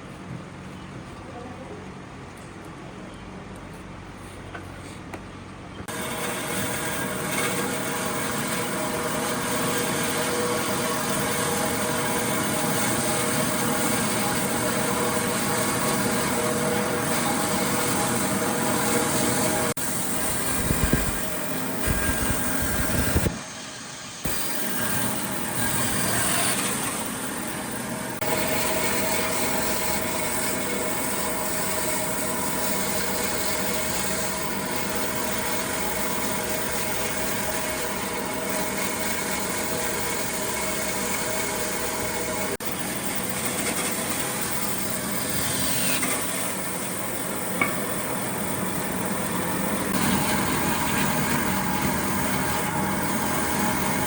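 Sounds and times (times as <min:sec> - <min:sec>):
woodworking power tool running: 0:05.9 - 0:54.0.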